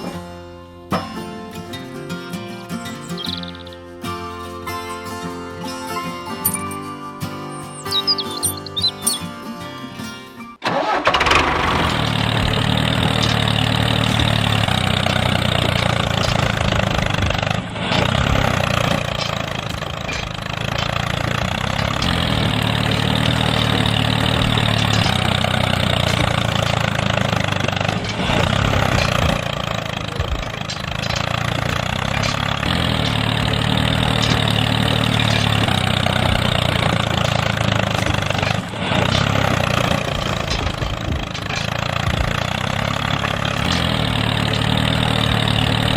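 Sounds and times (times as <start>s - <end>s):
small engine running: 10.7s - 45.9s.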